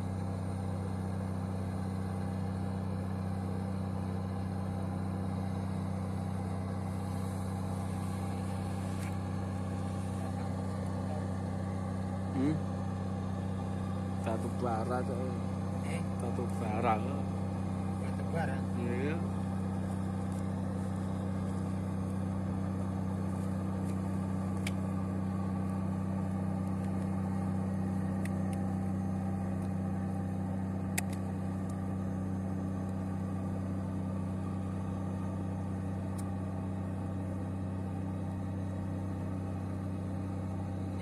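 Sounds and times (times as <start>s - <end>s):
boat engine droning: 3.0s - 32.8s.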